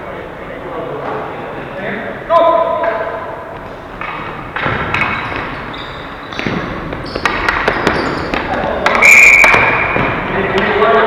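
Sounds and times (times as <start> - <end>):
hockey sticks and ball clacking: 2.7 - 11.0
players shouting: 5.0 - 11.0
referee's whistle blast: 8.9 - 10.1.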